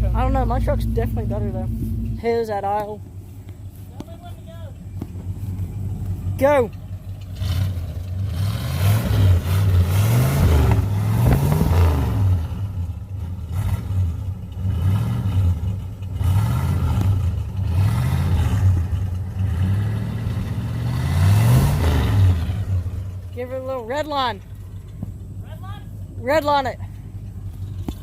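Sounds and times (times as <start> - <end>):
pickup truck engine revving: 0.0 - 28.0.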